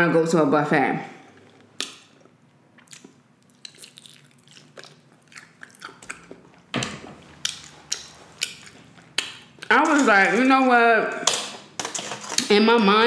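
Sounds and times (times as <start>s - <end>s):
biting and chewing mouth clicks: 1.8s - 6.6s, 7.4s - 9.7s.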